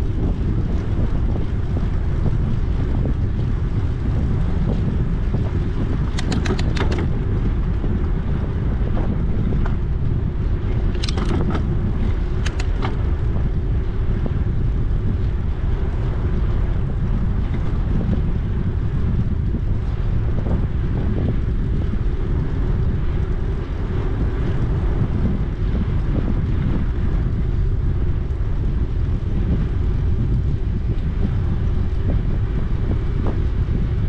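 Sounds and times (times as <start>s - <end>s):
wind buffeting microphone: 0.0s - 34.0s
bike rattling clicks: 5.8s - 7.4s, 10.6s - 13.4s.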